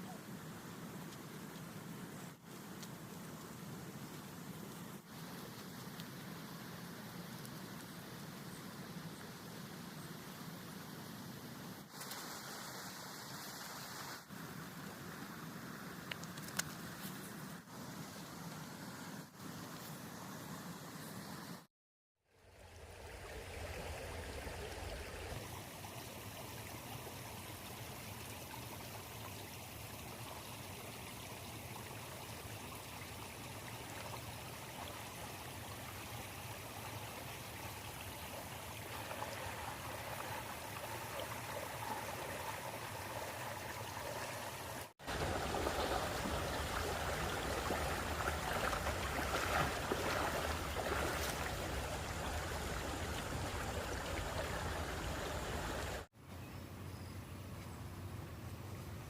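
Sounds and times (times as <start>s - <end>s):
stream water rushing: 29.8s - 56.1s.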